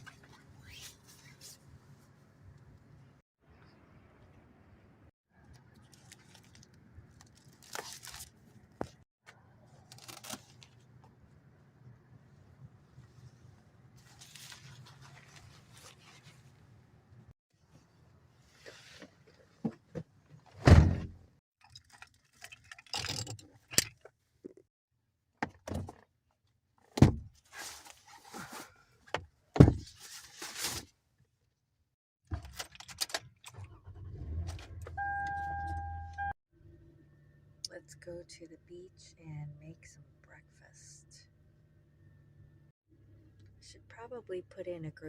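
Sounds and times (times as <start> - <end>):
electronic beep: 35.0 - 36.4.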